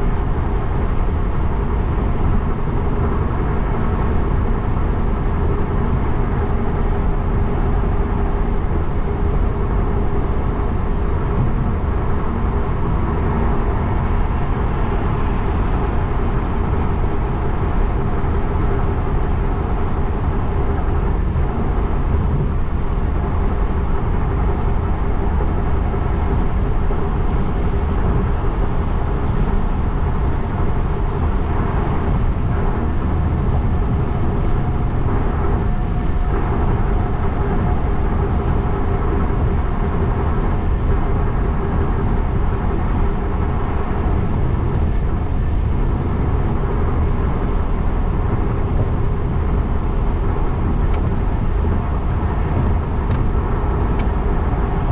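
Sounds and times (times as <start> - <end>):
car road noise: 0.0 - 54.9.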